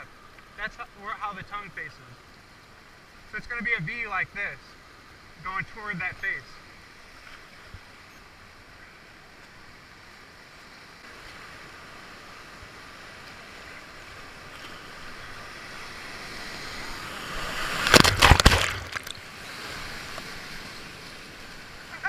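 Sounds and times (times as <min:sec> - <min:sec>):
loud splashing water: 0:16.2 - 0:20.1.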